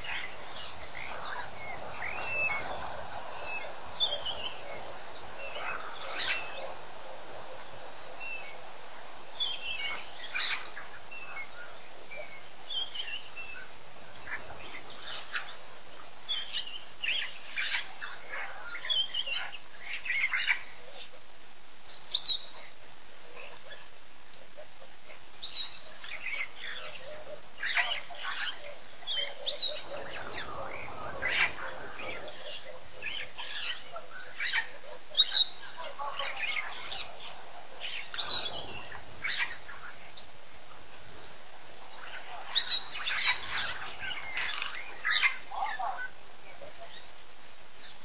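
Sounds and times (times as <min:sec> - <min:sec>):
small birds chirping: 0:00.0 - 0:48.0
steady background hiss: 0:00.0 - 0:48.0.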